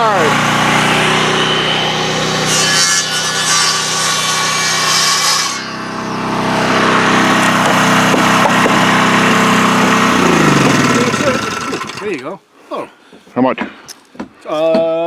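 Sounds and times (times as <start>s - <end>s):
rough scraping rubbing noise: 0.7s - 12.2s
engine idling: 6.8s - 12.2s.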